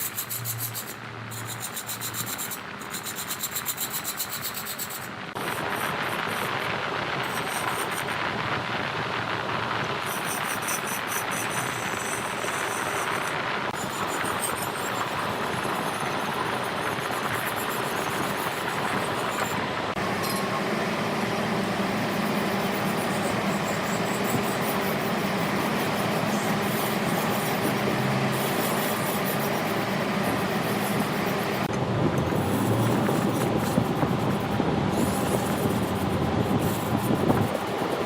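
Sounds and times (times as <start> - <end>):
wood lathe running: 10.1 - 38.0.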